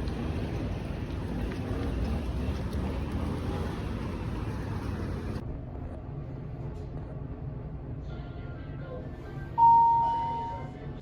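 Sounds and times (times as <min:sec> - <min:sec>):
vehicle rumble in motion: 0:00.0 - 0:08.1
faint music: 0:00.0 - 0:11.0
loud electronic beep: 0:09.6 - 0:10.7.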